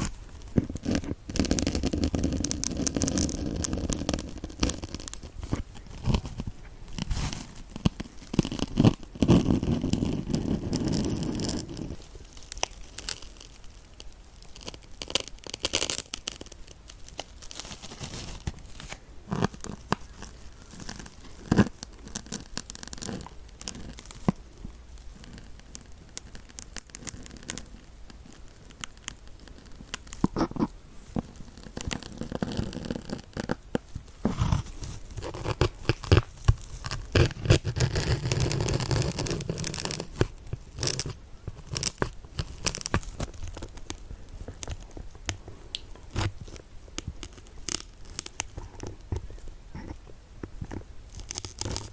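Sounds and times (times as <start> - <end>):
needles scraping a sponge: 0.0 - 13.5, 25.1 - 45.4.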